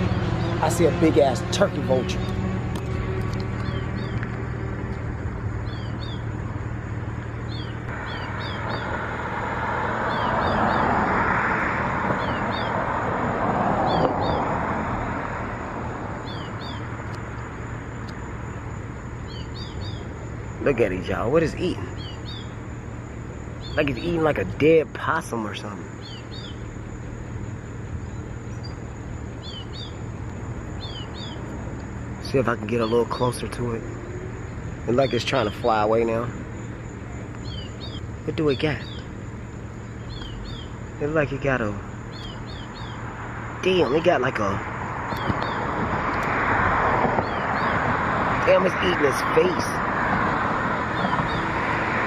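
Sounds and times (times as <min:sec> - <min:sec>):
songbird chirping: 0:00.0 - 0:52.0
traffic rush: 0:00.0 - 0:52.0
small bird whistling: 0:30.8 - 0:31.4.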